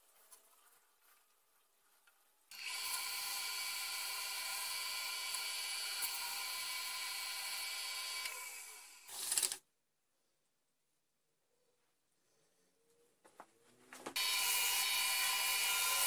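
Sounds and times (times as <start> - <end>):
wood lathe motor whine: 2.6 - 9.0, 14.2 - 16.0.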